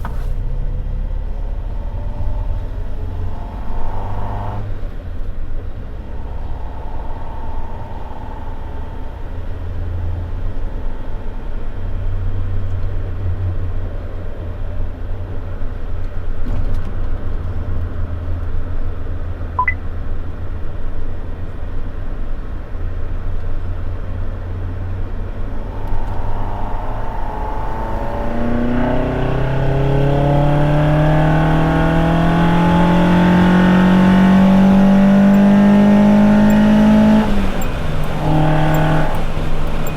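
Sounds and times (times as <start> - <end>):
car engine droning: 0.0 - 15.2, 23.6 - 39.9
road noise: 0.0 - 15.8, 23.1 - 39.9.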